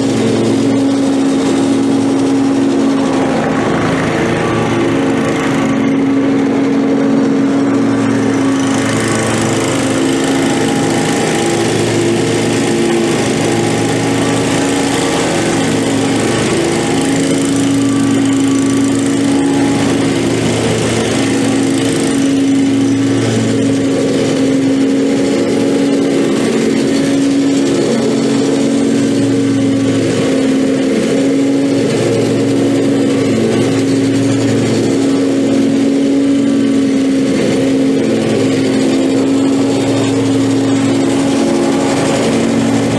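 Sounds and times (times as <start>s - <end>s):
lawn mower engine running: 0.0s - 42.9s.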